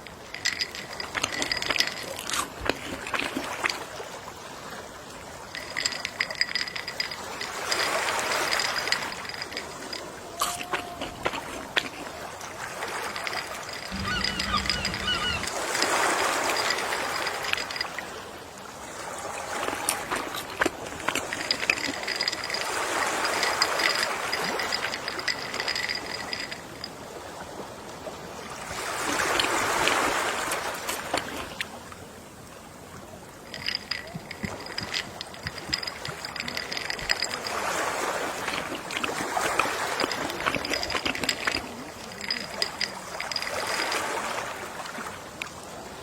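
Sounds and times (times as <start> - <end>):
ocean waves washing onto beach: 0.0 - 46.0
faint high steady tone: 13.9 - 15.7.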